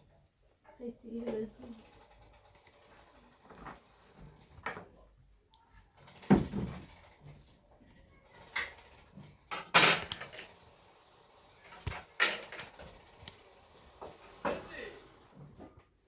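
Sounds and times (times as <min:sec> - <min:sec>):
longer rattle: 0:01.2 - 0:04.8, 0:05.7 - 0:15.5
objects clattering and knocking: 0:05.9 - 0:07.5, 0:08.4 - 0:10.6, 0:11.6 - 0:13.3, 0:13.9 - 0:16.0.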